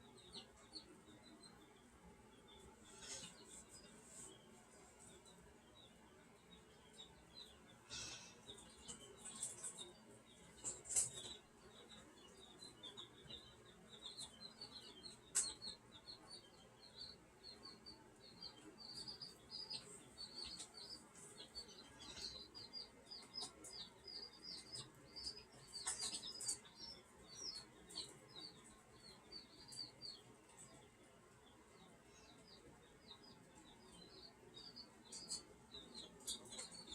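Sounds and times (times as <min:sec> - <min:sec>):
small birds chirping: 0:00.0 - 0:36.9.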